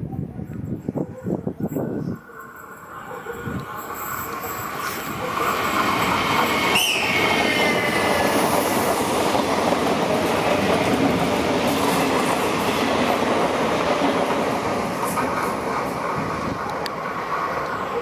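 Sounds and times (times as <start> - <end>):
train wheels rumbling on rail: 0.5 - 18.0
high wheel squeal: 1.8 - 8.6.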